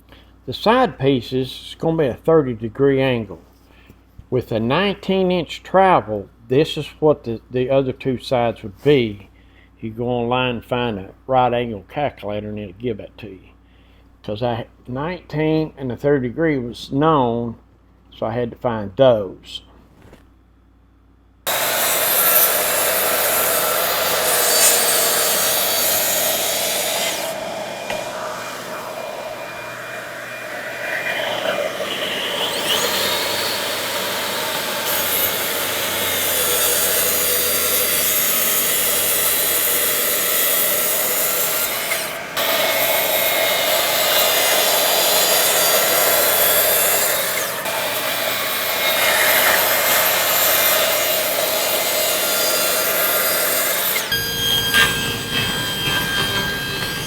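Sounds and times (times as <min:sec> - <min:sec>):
electric saw cutting wood: 0:21.5 - 0:57.0.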